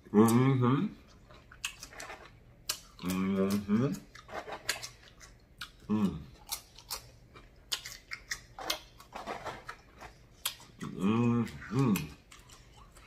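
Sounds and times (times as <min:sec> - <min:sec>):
chewing with lip smacks: 0:01.0 - 0:13.0
person humming mm: 0:05.9 - 0:06.3, 0:10.9 - 0:12.1.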